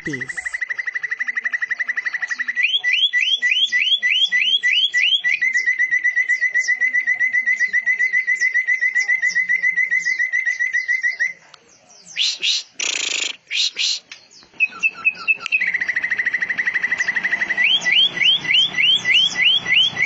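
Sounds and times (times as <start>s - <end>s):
songbirds singing: 0.0s - 20.0s
high twittering chirps: 12.0s - 20.0s.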